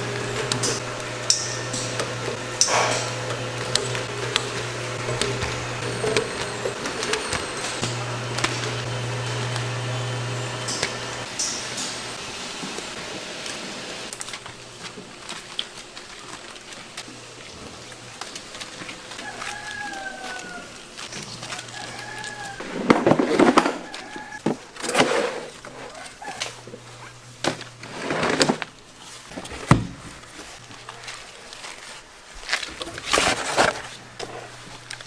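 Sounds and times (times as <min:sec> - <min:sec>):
low steady hum: 0:00.0 - 0:04.1, 0:05.0 - 0:12.1.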